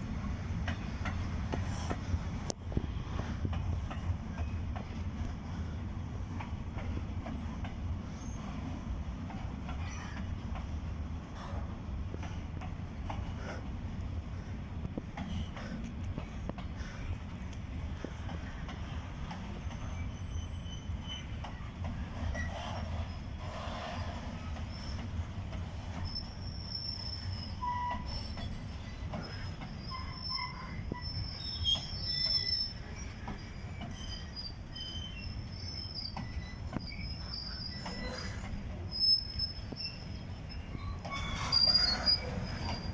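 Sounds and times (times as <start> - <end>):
train rumbling past: 0.0 - 42.9
train wheels squealing: 3.1 - 10.4, 17.9 - 42.9.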